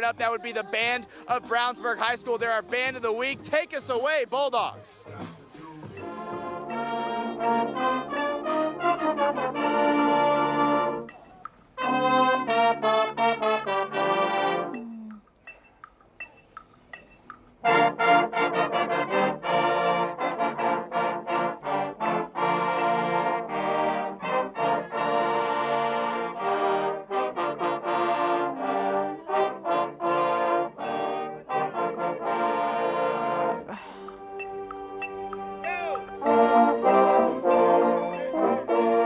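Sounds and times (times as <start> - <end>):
marching band playing: 0.0 - 15.0, 17.1 - 39.0
faint clicks: 14.7 - 17.6.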